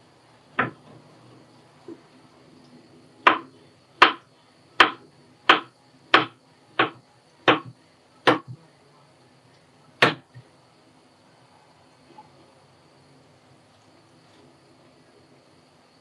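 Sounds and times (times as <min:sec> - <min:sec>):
sharp knocks: 0:00.6 - 0:00.9, 0:03.2 - 0:04.2, 0:04.8 - 0:08.6, 0:10.0 - 0:10.4.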